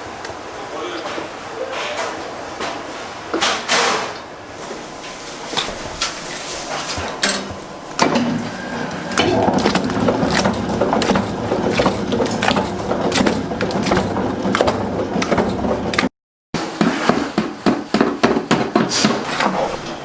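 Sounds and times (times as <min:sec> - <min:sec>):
machine-like hum: 0:05.3 - 0:16.1.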